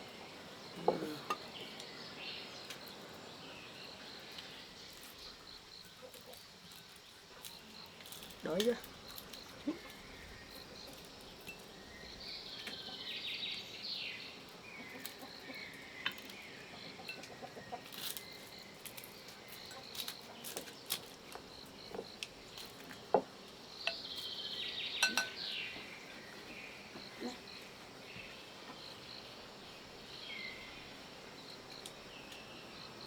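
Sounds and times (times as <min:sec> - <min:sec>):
bird chirping: 0:00.0 - 0:33.0
chopsticks and bowls clicking: 0:25.0 - 0:25.4.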